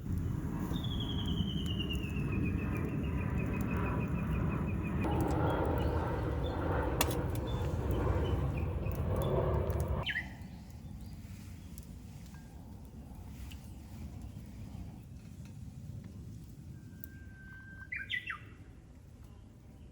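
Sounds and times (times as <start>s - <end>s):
low rushing noise: 4.4s - 10.0s.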